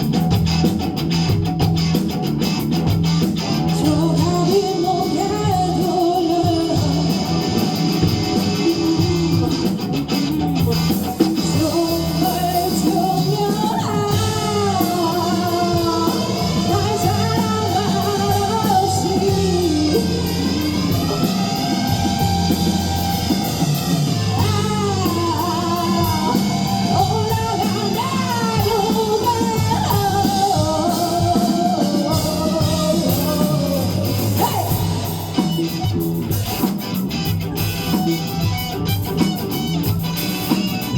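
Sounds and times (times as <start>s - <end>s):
rock band playing live: 0.0s - 40.9s
lead vocal singing: 3.7s - 9.9s, 11.3s - 35.8s.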